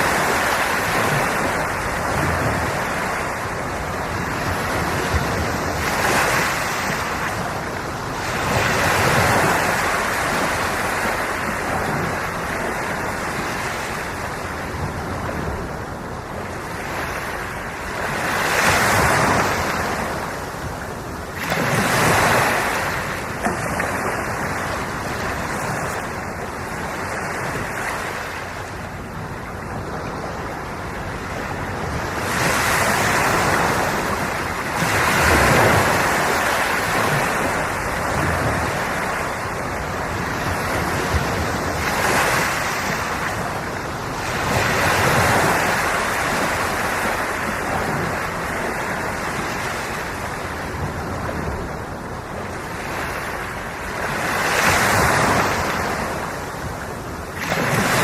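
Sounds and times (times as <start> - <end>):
ocean waves washing ashore: 0.0 - 58.0
wind on microphone: 0.0 - 58.0.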